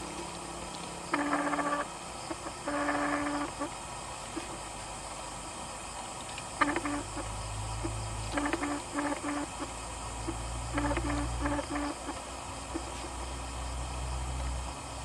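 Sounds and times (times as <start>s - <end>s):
distant machinery drone: 0.0s - 15.0s
animal calling: 1.1s - 3.7s, 6.6s - 13.2s.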